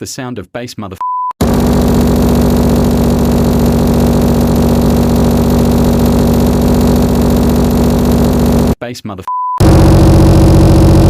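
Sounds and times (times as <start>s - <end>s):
electronic bass drone: 1.4s - 8.8s, 9.6s - 11.0s.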